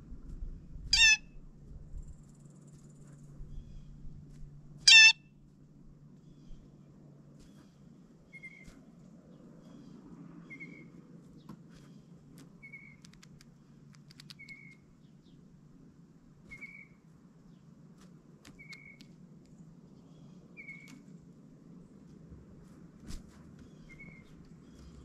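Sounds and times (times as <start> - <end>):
small bird call note: 0.9 - 1.3, 4.9 - 5.2
sharp clicks: 12.4 - 14.8, 18.4 - 19.6.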